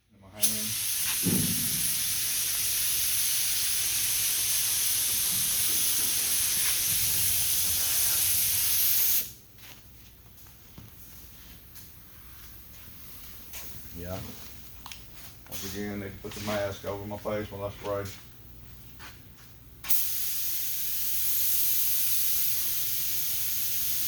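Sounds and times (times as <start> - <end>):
compressed air hissing from spray gun: 0.4 - 9.4, 19.8 - 24.0.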